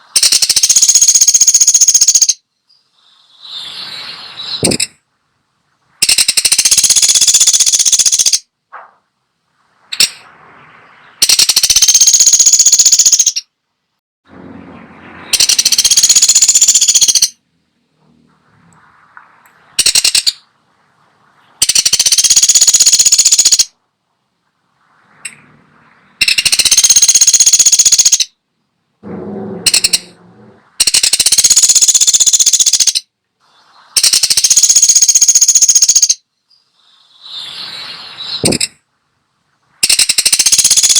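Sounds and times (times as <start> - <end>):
woodpecker rattling trills: 0.1 - 2.4, 6.0 - 8.5, 11.1 - 13.5, 15.2 - 17.4, 19.8 - 20.5, 21.6 - 23.8, 26.2 - 28.3, 29.1 - 33.1, 34.0 - 36.2, 39.8 - 40.9.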